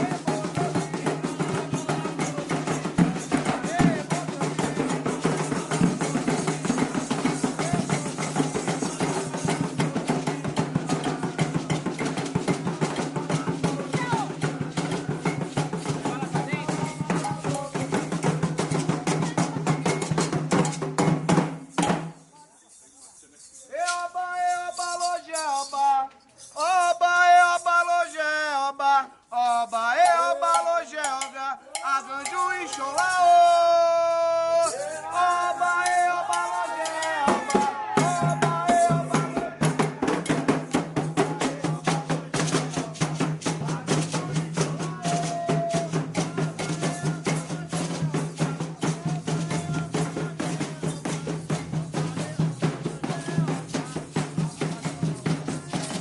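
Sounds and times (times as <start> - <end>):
person chanting: 0.0 - 6.8, 25.6 - 56.0
hand drums playing fast rhythm: 0.0 - 22.2, 30.0 - 34.6, 35.2 - 56.0.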